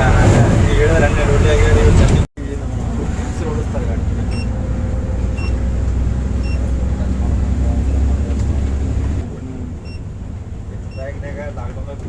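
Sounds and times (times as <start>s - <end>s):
bus engine rumbling: 0.0s - 12.0s.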